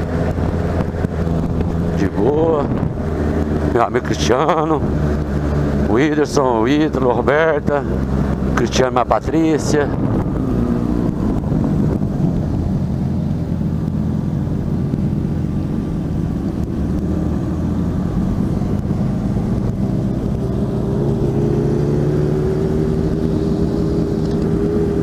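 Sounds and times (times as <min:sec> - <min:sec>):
wind rushing on microphone: 0:00.0 - 0:25.0
motorcycle engine running: 0:09.4 - 0:25.0.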